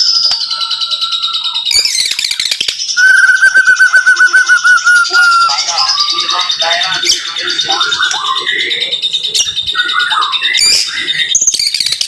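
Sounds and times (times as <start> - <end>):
bird singing whistled phrases: 3.0 - 5.7.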